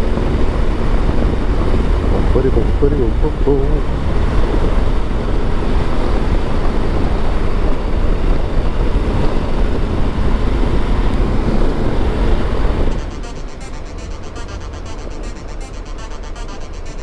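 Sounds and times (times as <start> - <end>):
motorcycle engine: 8.0 - 14.3.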